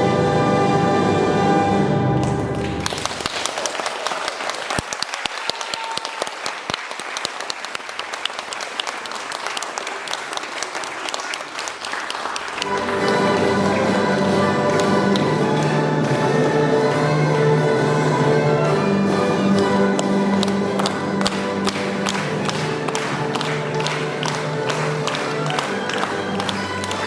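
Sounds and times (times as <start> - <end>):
orchestral music: 0.0 - 3.3, 12.6 - 27.0
audience clapping: 2.2 - 27.0.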